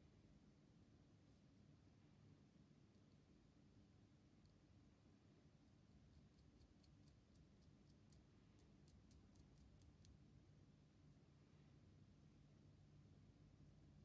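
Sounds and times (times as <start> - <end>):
faint sharp high ticks: 6.2 - 10.2.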